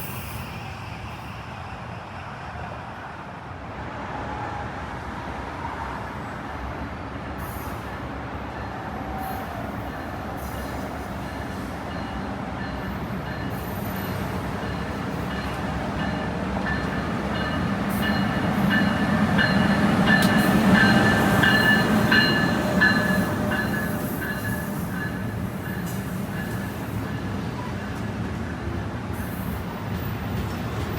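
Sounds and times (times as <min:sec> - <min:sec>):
train rumbling past: 0:00.0 - 0:30.9.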